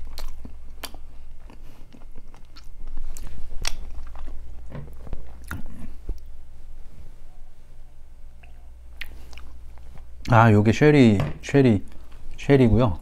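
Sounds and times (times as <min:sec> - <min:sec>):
person chewing food: 0:00.0 - 0:06.4, 0:08.4 - 0:10.3.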